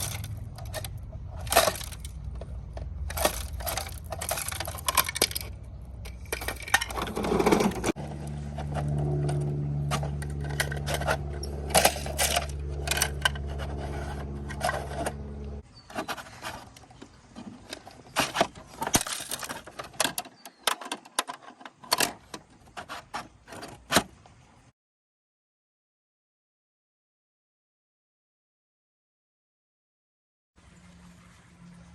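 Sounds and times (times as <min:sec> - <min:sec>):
toy parts clicking and rattling: 0:00.0 - 0:15.3, 0:15.9 - 0:23.3
steady low hum: 0:00.0 - 0:15.6.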